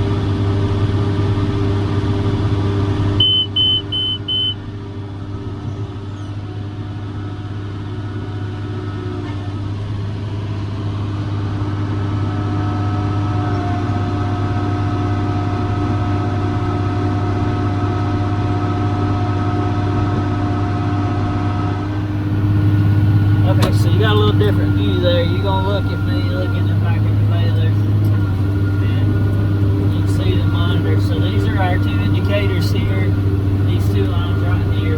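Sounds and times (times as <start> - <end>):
tractor diesel engine running: 0.0 - 16.8, 21.7 - 34.9
steady whine: 21.7 - 34.9.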